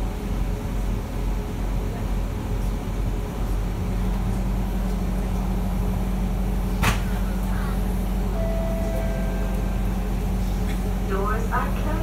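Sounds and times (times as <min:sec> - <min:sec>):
train equipment hum: 0:00.0 - 0:12.0
steady low tone: 0:04.2 - 0:12.0.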